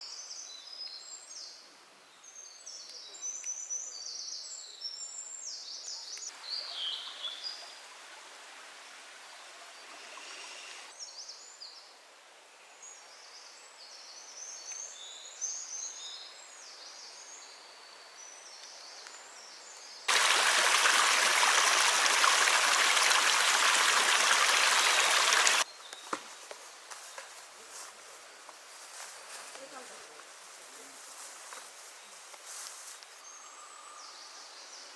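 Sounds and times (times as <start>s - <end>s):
small birds chirping: 2.4s - 7.9s, 13.9s - 26.1s
spring water rushing: 6.4s - 10.9s, 20.1s - 25.6s.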